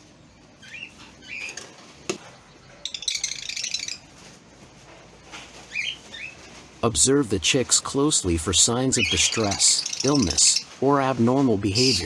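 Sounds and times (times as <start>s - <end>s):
lovebirds chirping: 0.0s - 4.4s, 5.2s - 6.8s, 7.5s - 12.0s.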